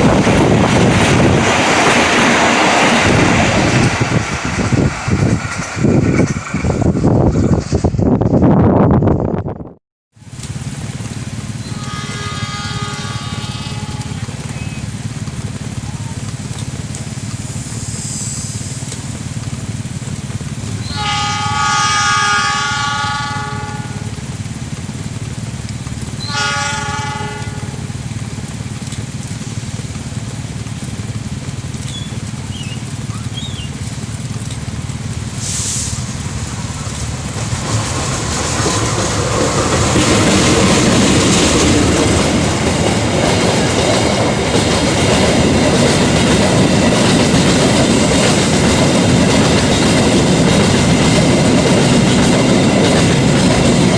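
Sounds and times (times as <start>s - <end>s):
train wheels on rails: 0.0s - 9.3s, 10.2s - 53.9s
diesel locomotive engine rumble: 0.0s - 53.9s
train horn blasts: 11.6s - 14.6s, 20.8s - 24.3s, 26.2s - 28.1s.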